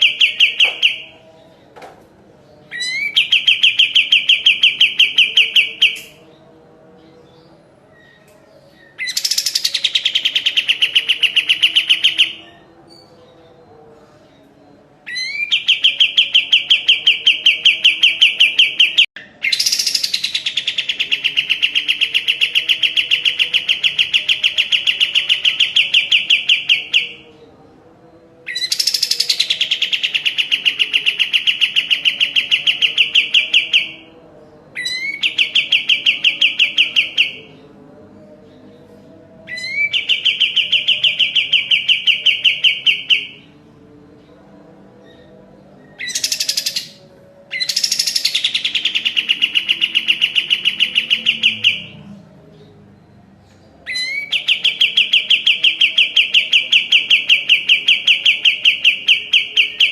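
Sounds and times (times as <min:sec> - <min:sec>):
songbird singing fast trills: 0:45.9 - 0:52.0.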